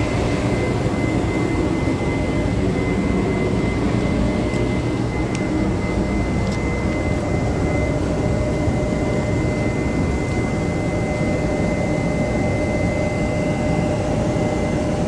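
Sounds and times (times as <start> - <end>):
diesel locomotive idling: 0.0 - 11.4
thin steady whine: 0.0 - 15.0.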